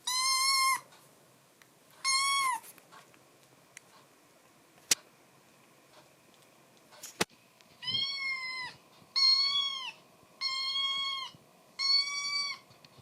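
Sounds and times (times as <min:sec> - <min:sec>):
kitten meowing: 0:00.0 - 0:00.8, 0:02.0 - 0:02.6, 0:07.8 - 0:12.6.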